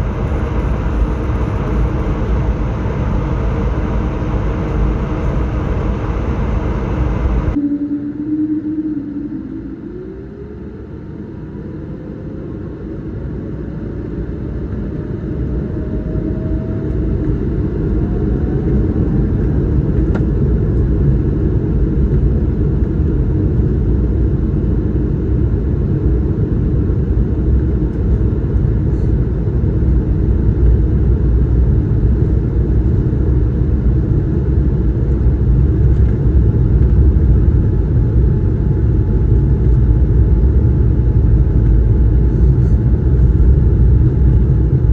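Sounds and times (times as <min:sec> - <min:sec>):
jet engines spooling up: 0:00.0 - 0:11.1.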